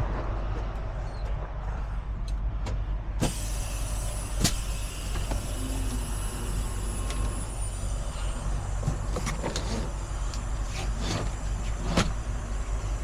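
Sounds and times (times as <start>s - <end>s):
diesel truck engine idling: 2.8s - 13.0s.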